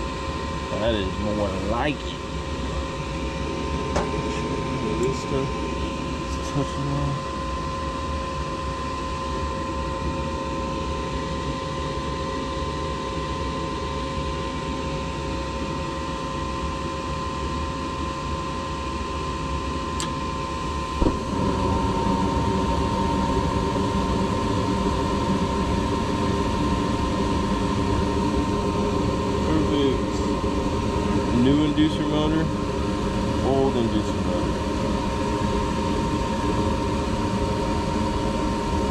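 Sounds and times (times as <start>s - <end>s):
furnace motor humming: 0.0s - 11.6s, 20.0s - 38.9s.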